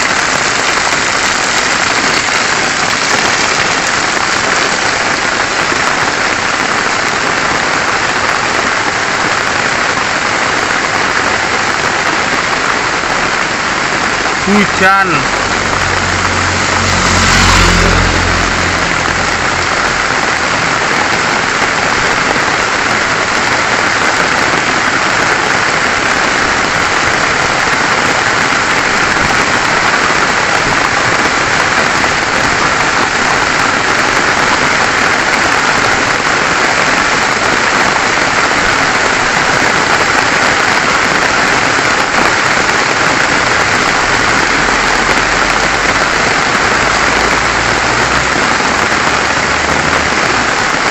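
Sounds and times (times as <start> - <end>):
rain falling: 0.0 - 50.9
low rumble: 15.2 - 21.8.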